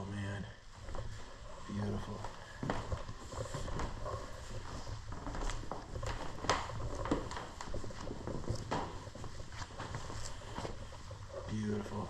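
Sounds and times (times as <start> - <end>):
footsteps: 0.0 - 12.0.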